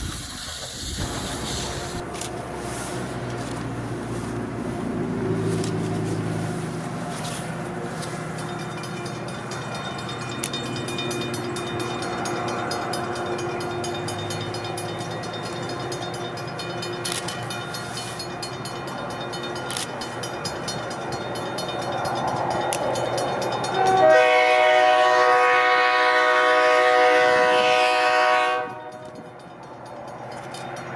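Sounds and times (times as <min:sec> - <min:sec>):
train rumbling past: 0:00.0 - 0:30.9
loud train whistle chord: 0:23.6 - 0:29.2.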